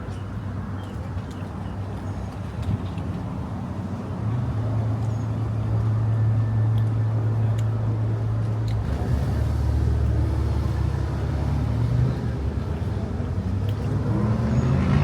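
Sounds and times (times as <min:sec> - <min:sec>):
car engine and road hum: 0:06.8 - 0:15.0.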